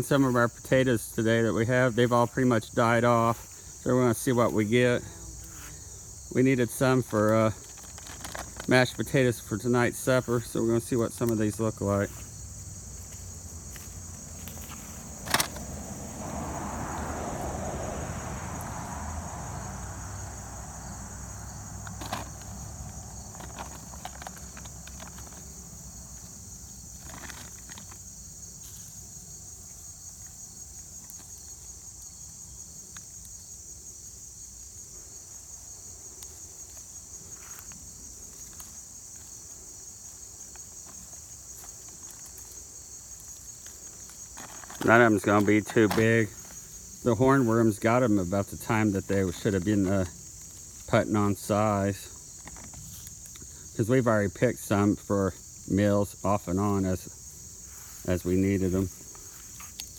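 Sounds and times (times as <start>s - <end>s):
crickets chirping: 0.0s - 59.9s
rustling and handling noise: 6.7s - 15.7s, 21.8s - 29.1s, 40.1s - 47.5s, 52.2s - 53.5s, 57.6s - 59.9s.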